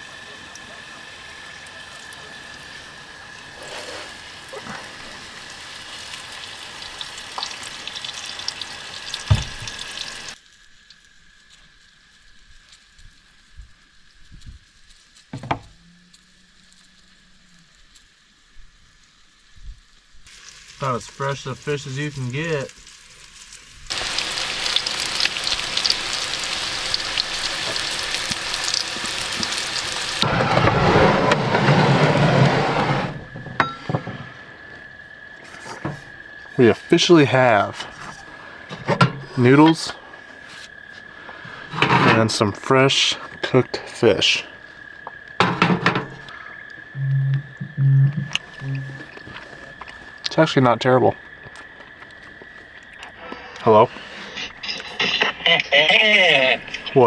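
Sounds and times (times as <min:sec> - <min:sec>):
fish sizzling in hot oil: 0:00.0 - 0:10.4, 0:20.3 - 0:30.3.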